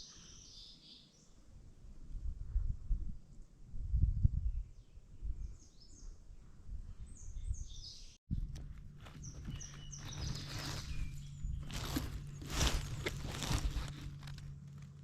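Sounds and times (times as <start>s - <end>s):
birds chirping: 7.0s - 14.7s
low rumble: 8.3s - 15.0s
steady low hum: 8.3s - 15.0s
rustle: 8.4s - 15.0s.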